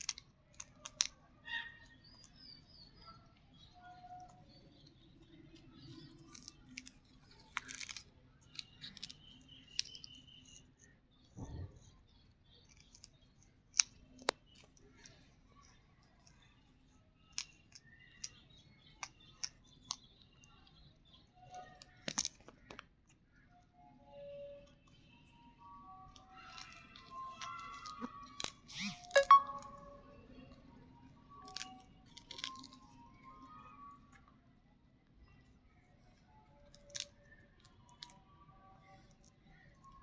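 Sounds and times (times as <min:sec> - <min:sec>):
parrots tearing at sugarcane: 0:00.0 - 0:01.1, 0:05.8 - 0:10.3, 0:13.7 - 0:14.8, 0:26.2 - 0:29.2, 0:31.4 - 0:33.0, 0:36.7 - 0:37.1
parrot chirps: 0:26.3 - 0:30.4.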